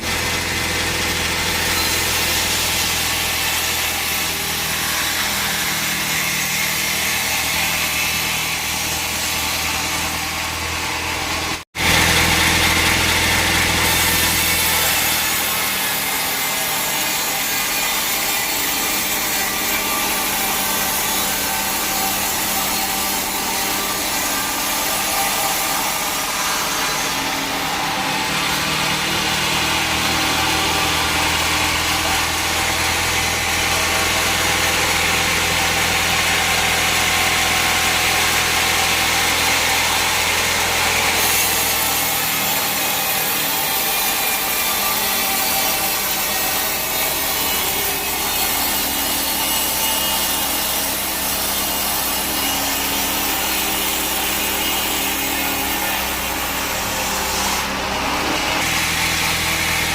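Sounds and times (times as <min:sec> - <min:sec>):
bandsaw blade cutting log: 0:00.0 - 0:59.9.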